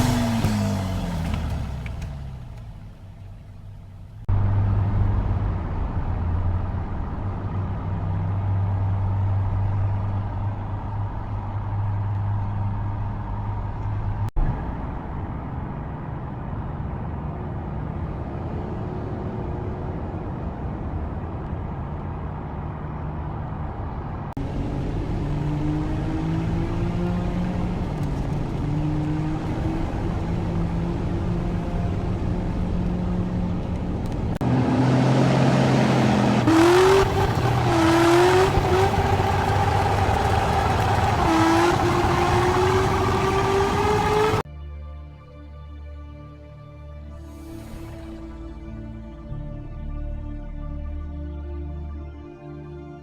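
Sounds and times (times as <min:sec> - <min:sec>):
car engine revving: 0:00.0 - 0:03.2, 0:24.4 - 0:44.4
car engine droning: 0:00.0 - 0:44.4.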